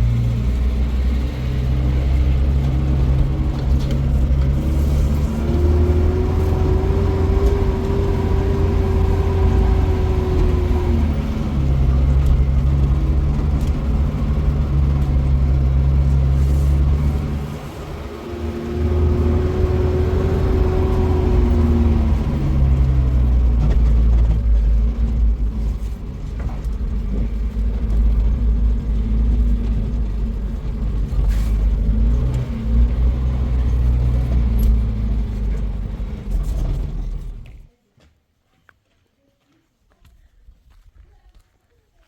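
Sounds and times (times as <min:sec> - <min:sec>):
motor vehicle engine rumbling: 0:00.0 - 0:37.8.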